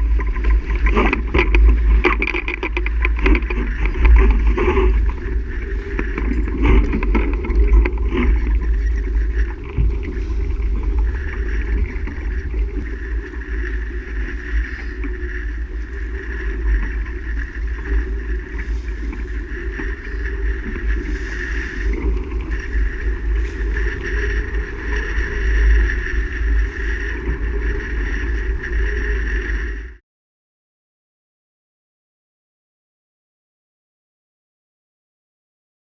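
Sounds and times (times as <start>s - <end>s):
low rumble on microphone: 0.0s - 30.0s
sailboat under way: 0.0s - 30.0s.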